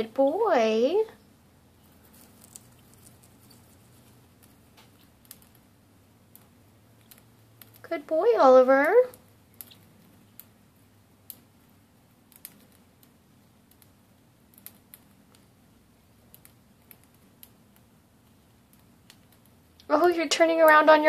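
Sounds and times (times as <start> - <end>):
small bird clicking: 2.0 - 7.9, 9.0 - 10.6, 11.2 - 11.6, 12.2 - 19.9.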